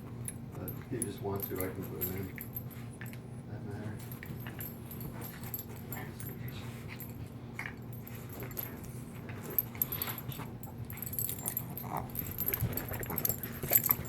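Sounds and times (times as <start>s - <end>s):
steady low hum: 0.0s - 14.0s
metallic jingling: 0.6s - 2.8s, 7.8s - 14.0s.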